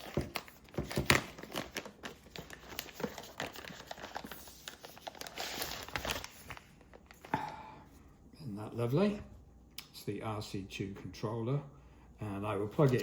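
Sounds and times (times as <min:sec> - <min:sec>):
packaging crinkling and rustling: 0:00.0 - 0:07.4, 0:12.8 - 0:13.0.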